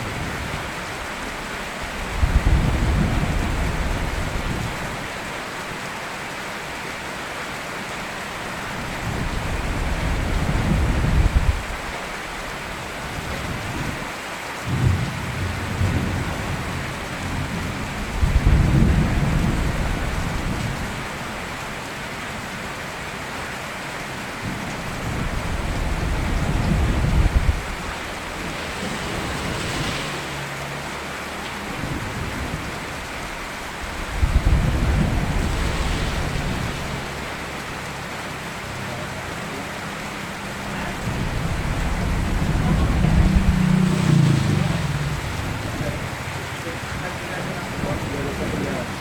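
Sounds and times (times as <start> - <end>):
thunder rumbling: 0.0 - 4.9, 8.8 - 14.0, 14.7 - 21.6, 24.3 - 30.7, 31.6 - 38.6, 40.8 - 49.0
steady rain: 0.0 - 49.0.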